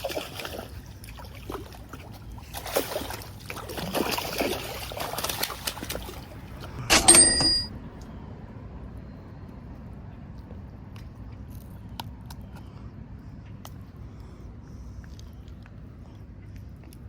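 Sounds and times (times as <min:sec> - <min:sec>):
water splashing and trickling: 0:00.0 - 0:06.8.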